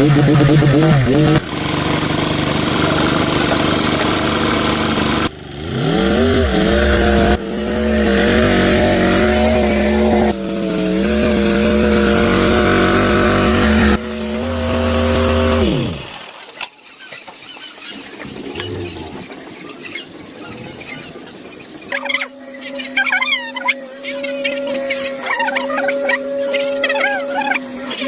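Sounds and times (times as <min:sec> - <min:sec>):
tractor engine running: 0:00.0 - 0:16.3
harsh machine noise: 0:00.0 - 0:16.4.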